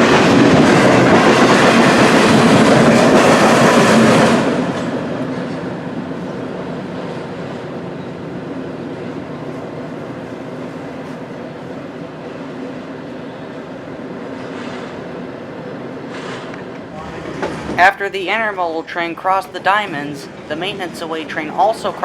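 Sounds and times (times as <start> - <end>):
train rumble: 0.0 - 22.0
train wheels clattering: 16.0 - 18.0.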